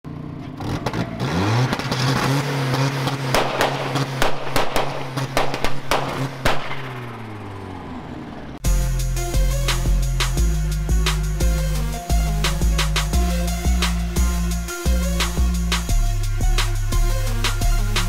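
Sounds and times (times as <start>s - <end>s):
car engine revving: 0.5s - 18.0s
sharp exhaust cracks: 0.6s - 7.6s.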